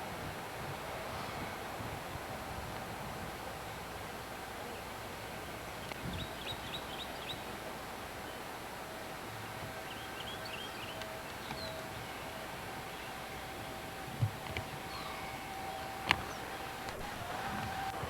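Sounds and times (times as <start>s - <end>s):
background hiss: 0.0s - 18.0s
faint steady hum: 0.0s - 18.0s
songbird chirping: 9.8s - 18.0s.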